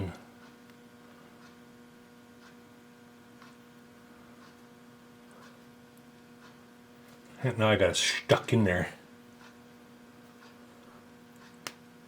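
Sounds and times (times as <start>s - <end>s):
faint electrical hum: 0.0s - 12.0s
soft ticks: 0.4s - 1.6s, 2.4s - 2.6s, 3.4s - 3.8s, 4.4s - 6.6s, 9.4s - 9.6s, 10.3s - 11.8s.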